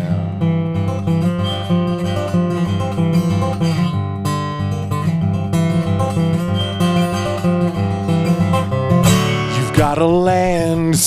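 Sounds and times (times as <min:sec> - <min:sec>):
guitar strumming chords: 0:00.0 - 0:11.0
person singing: 0:09.1 - 0:11.0.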